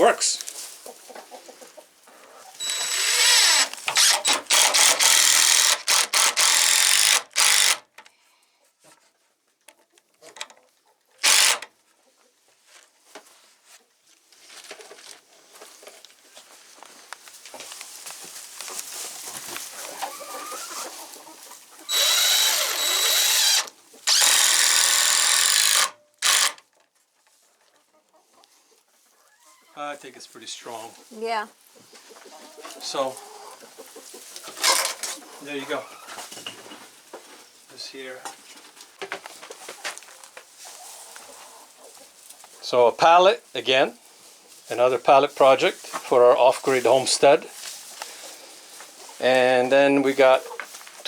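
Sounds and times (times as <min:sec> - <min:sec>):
chickens clucking: 0:00.0 - 0:02.9, 0:08.5 - 0:12.7, 0:18.6 - 0:22.0, 0:23.7 - 0:24.1, 0:26.8 - 0:29.8, 0:30.8 - 0:37.5, 0:38.2 - 0:42.6, 0:47.0 - 0:51.0
power drill driving screws: 0:02.6 - 0:07.9, 0:11.2 - 0:11.7, 0:21.9 - 0:26.6, 0:34.6 - 0:35.1.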